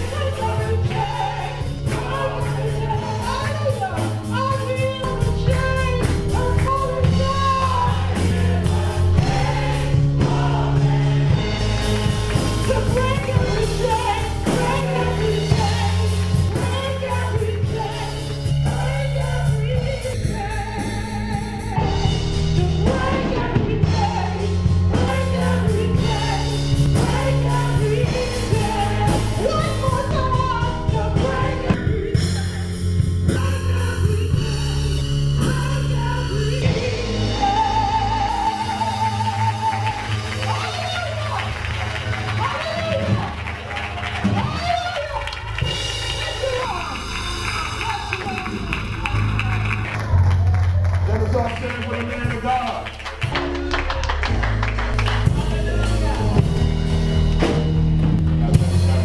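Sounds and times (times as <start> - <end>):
gospel singing: 0.0 - 50.1, 51.4 - 59.0
band with bass line: 0.0 - 59.0.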